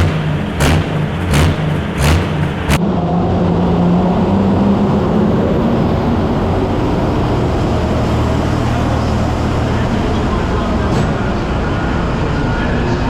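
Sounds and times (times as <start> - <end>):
tractor engine under load: 0.0 - 2.8.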